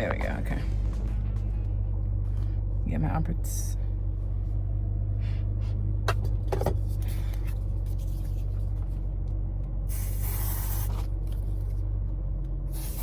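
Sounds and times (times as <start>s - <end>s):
steady low hum: 0.0s - 13.0s
aerosol spray hissing: 9.9s - 11.1s, 12.7s - 13.0s.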